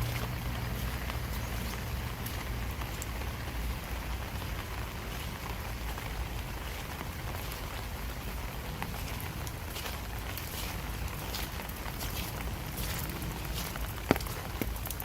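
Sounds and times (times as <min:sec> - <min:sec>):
rain hissing: 0:00.0 - 0:15.0
raindrops ticking: 0:00.0 - 0:15.0.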